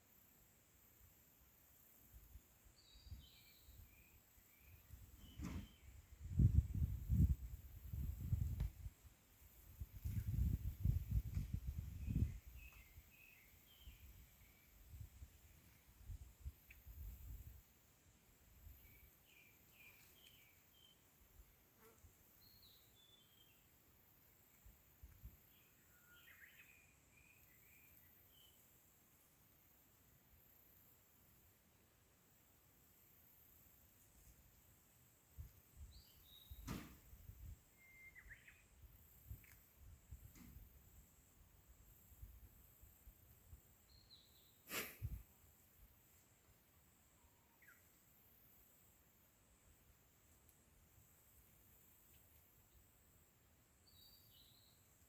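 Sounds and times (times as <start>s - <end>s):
faint bird chirping: 0.3s - 31.6s, 32.3s - 55.0s
insects hissing: 25.5s - 55.0s
sharp click: 36.6s - 37.0s
bird chirps: 37.7s - 38.8s, 53.8s - 54.9s.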